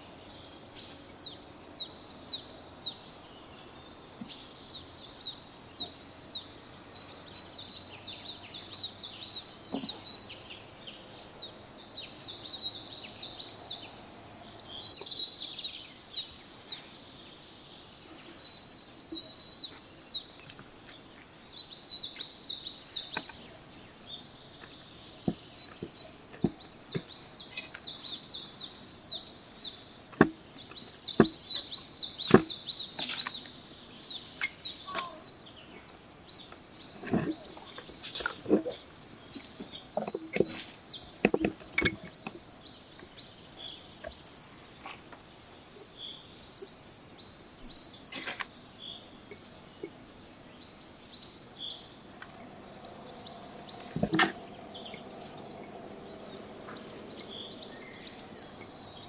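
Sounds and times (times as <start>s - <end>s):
small birds chirping: 0.0s - 59.0s
knocks on glass jar: 41.2s - 42.1s.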